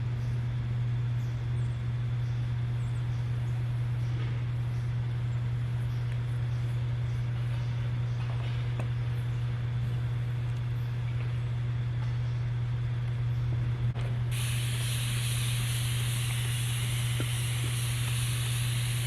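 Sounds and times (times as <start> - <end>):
low hum: 0.0 - 19.0
steady hiss: 14.3 - 19.0.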